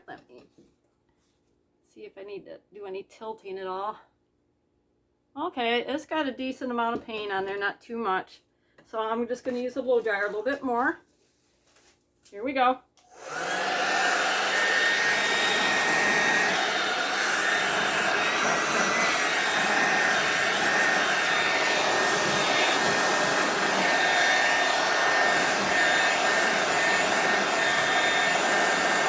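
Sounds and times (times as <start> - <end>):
hair dryer blowing: 13.1 - 29.0.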